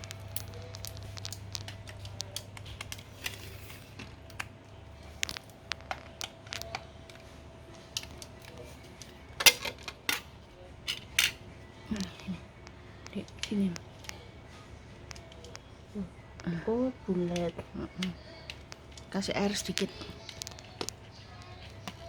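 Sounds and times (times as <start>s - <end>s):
objects clattering: 0.0s - 12.3s
objects clicking and tapping: 0.0s - 14.2s, 15.0s - 15.7s, 17.3s - 22.0s
steady low hum: 0.0s - 22.0s.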